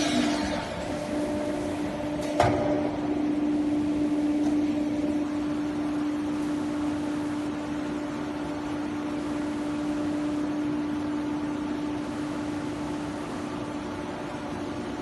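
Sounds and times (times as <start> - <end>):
cnc router spindle humming: 0.0 - 12.0.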